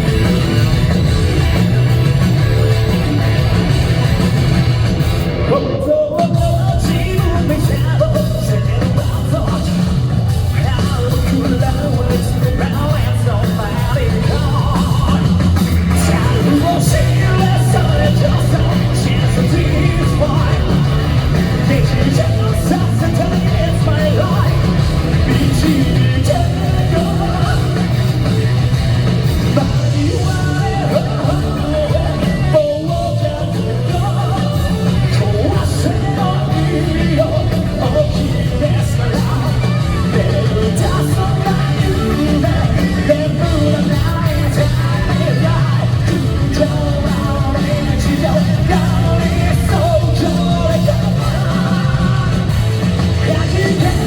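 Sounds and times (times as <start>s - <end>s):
live rock band playing: 0.0s - 54.0s
man singing lead: 0.0s - 54.0s.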